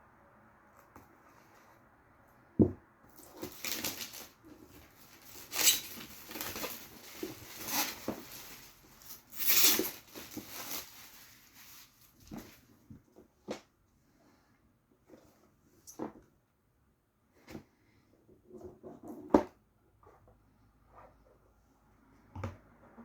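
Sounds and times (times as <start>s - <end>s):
thump: 2.6s - 2.8s
packaging rustling and crinkling: 3.1s - 12.8s.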